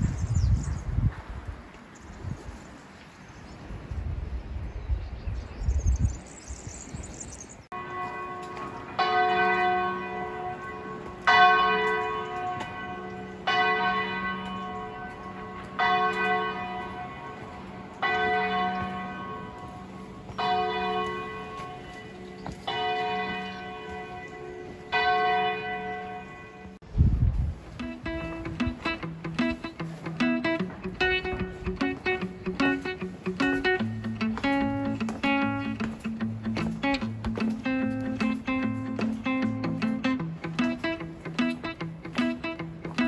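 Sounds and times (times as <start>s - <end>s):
church bell tolling: 7.7s - 26.8s.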